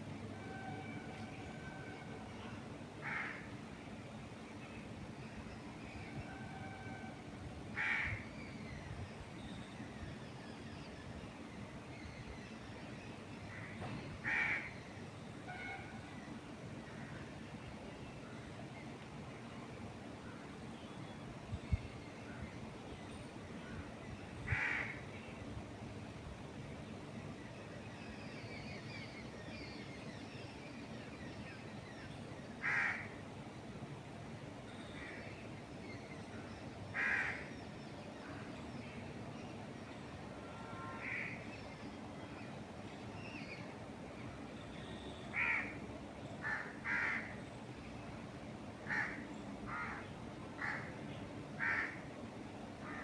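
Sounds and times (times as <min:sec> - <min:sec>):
wind in trees: 0:00.0 - 0:53.0
crow cawing: 0:03.0 - 0:03.5, 0:07.8 - 0:08.2, 0:14.2 - 0:14.7, 0:24.5 - 0:25.0, 0:32.6 - 0:33.1, 0:37.0 - 0:37.5, 0:40.8 - 0:41.4, 0:45.3 - 0:45.8, 0:46.4 - 0:47.3, 0:48.9 - 0:50.0, 0:50.6 - 0:50.9, 0:51.6 - 0:52.0.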